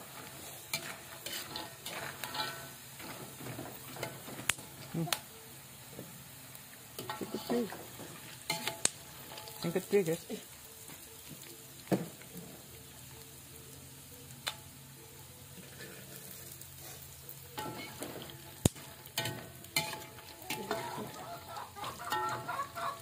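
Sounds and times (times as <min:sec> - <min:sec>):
food frying in hot oil: 0:00.0 - 0:23.0
chickens clucking: 0:07.0 - 0:08.2, 0:19.6 - 0:23.0.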